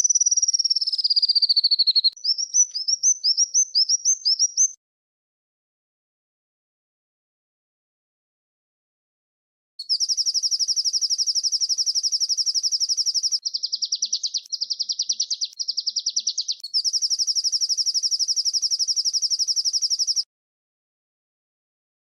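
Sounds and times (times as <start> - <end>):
songbird trilling: 0.0 - 4.8, 9.8 - 20.2.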